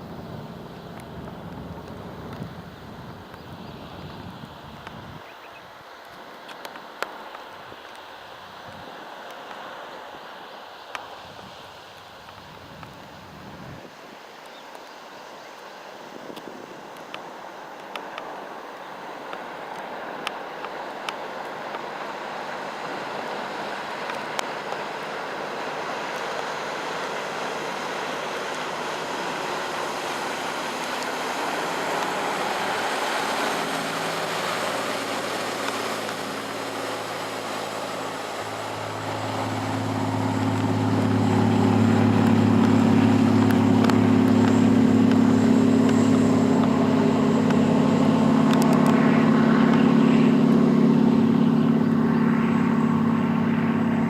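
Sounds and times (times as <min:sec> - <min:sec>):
boat engine running: 0:00.0 - 0:05.2, 0:19.0 - 0:54.0
rush of wind and water: 0:00.0 - 0:54.0.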